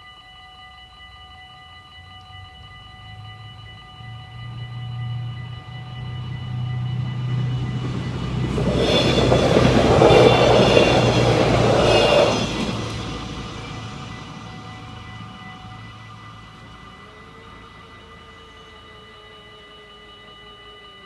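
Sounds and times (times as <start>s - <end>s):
crossing bells ringing: 0.0s - 21.0s
diesel train passing: 2.4s - 19.2s.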